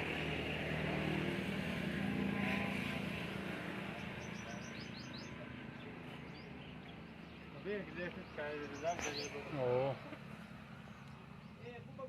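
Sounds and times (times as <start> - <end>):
birds chirping: 2.8 - 12.0.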